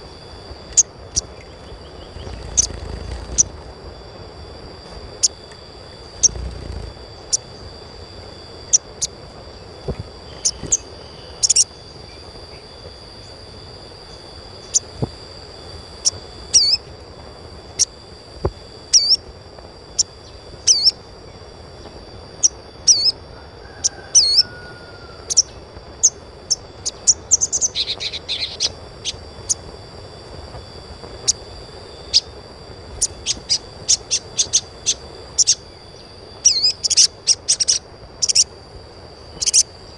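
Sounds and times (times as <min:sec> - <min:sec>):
bird chirping: 0:00.6 - 0:04.0, 0:04.8 - 0:07.5, 0:08.6 - 0:12.7, 0:18.9 - 0:19.2, 0:20.0 - 0:21.0, 0:22.4 - 0:23.2, 0:25.3 - 0:29.7, 0:33.0 - 0:38.5, 0:39.3 - 0:39.8.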